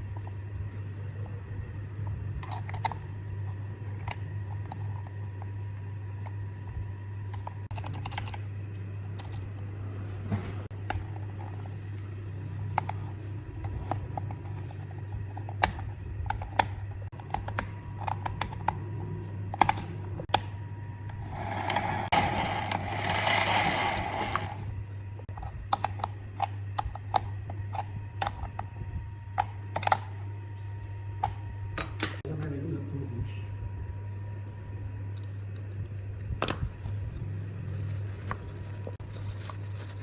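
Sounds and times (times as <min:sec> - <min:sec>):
steady low hum: 0:00.0 - 0:40.0
small parts clicking and tapping: 0:07.3 - 0:08.4, 0:09.1 - 0:09.7, 0:37.7 - 0:40.0.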